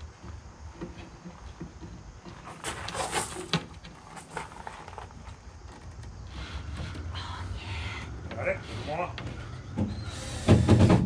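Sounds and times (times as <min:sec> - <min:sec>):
wood scraping and rustling: 0:00.2 - 0:07.4.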